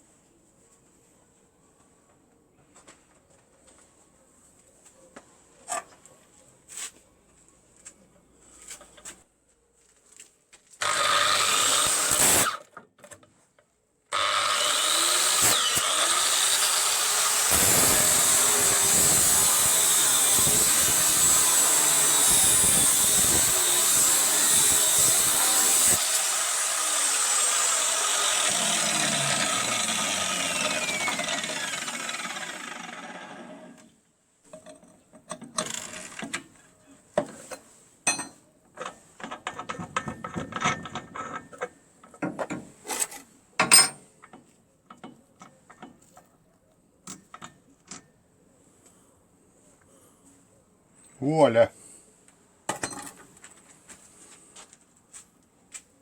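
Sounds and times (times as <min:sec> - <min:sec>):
angle grinder motor running: 0:14.2 - 0:33.8
grinder winding down: 0:14.2 - 0:33.8.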